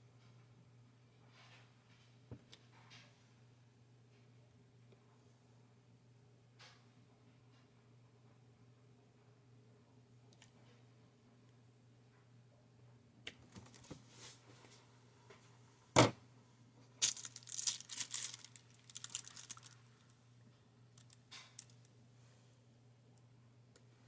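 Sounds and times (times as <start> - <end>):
low electrical hum: 0.0 - 24.0
crinkling and rustling handling noise: 13.4 - 15.6, 16.8 - 21.9.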